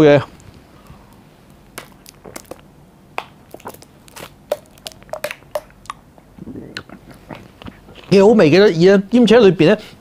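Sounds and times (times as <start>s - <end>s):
wet chewing clicks and squishes: 1.7s - 6.1s.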